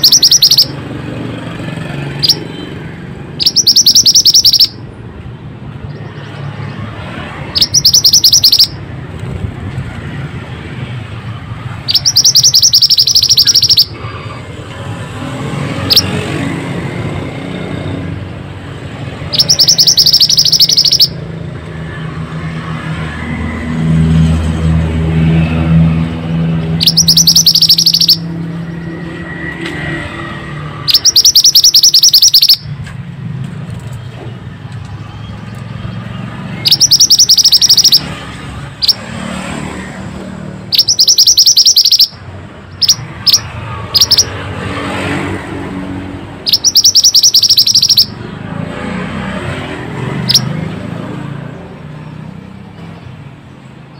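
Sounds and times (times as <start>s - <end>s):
bird chirps: 0.0s - 0.8s, 2.2s - 2.7s, 3.4s - 4.8s, 7.6s - 8.8s, 11.9s - 14.0s, 15.8s - 16.1s, 19.3s - 21.2s, 26.6s - 28.8s, 30.9s - 32.8s, 35.2s - 38.2s, 38.8s - 39.0s, 40.7s - 44.4s, 46.5s - 48.2s, 50.2s - 50.6s
bird singing buzzy trills: 0.0s - 0.8s, 2.2s - 2.6s, 3.4s - 4.8s, 5.8s - 8.8s, 11.9s - 14.0s, 19.1s - 21.2s, 26.6s - 28.9s, 30.8s - 32.7s, 35.2s - 39.1s, 40.7s - 44.4s, 46.4s - 48.2s.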